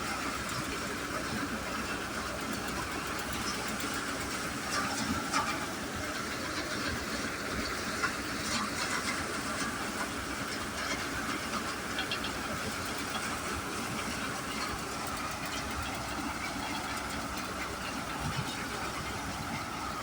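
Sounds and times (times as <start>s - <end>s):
threshing machine hum: 0.0s - 20.0s.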